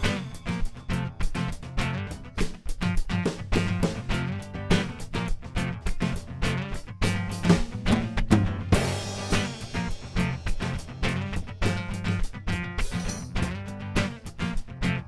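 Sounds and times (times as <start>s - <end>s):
drums with bass drum and snare: 0.0s - 15.0s
guitar: 0.0s - 15.0s
cymbal crash: 8.7s - 11.5s.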